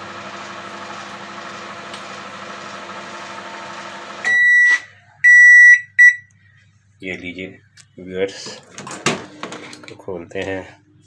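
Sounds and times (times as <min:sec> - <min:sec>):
microwave oven humming: 0:00.0 - 0:06.9
microwave beeps: 0:04.2 - 0:06.4.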